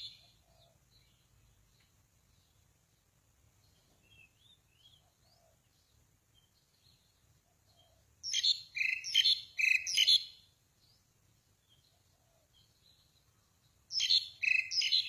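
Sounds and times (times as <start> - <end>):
faint bird calls: 0.0 - 1.9, 3.7 - 5.9, 7.4 - 10.3, 11.6 - 15.0
small bird chattering call: 7.8 - 10.3, 13.9 - 15.0.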